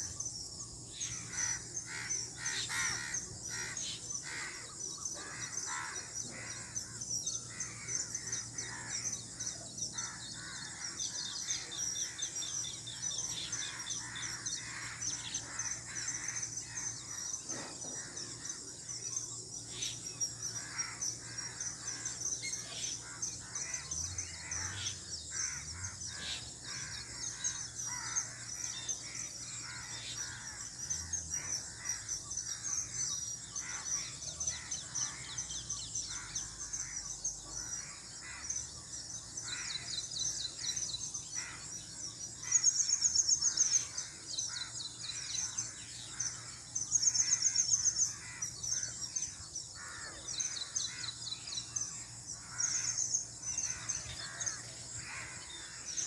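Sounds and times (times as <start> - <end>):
birds chirping and trilling: 0.0 - 56.0
birds cawing: 1.0 - 19.0, 19.6 - 56.0.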